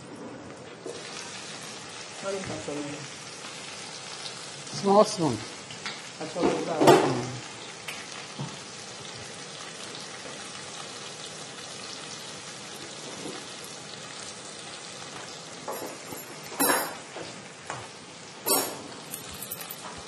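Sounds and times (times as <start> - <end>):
paste sizzling in oil: 0.7 - 19.2.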